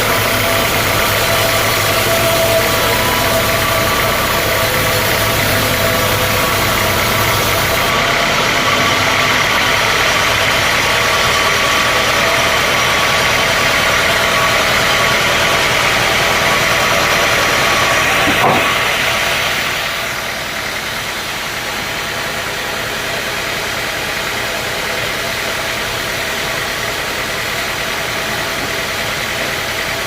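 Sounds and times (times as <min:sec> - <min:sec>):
sawmill machinery running: 0:00.0 - 0:30.0
brief knock: 0:18.2 - 0:18.8.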